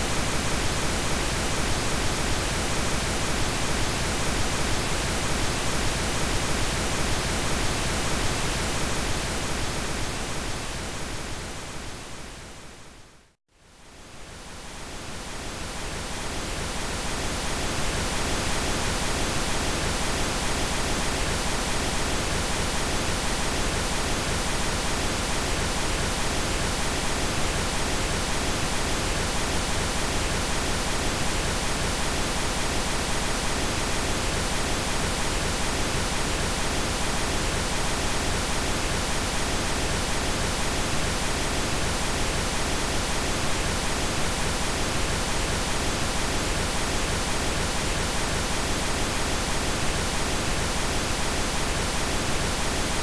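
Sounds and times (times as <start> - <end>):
pink noise hiss: 0.0 - 53.0.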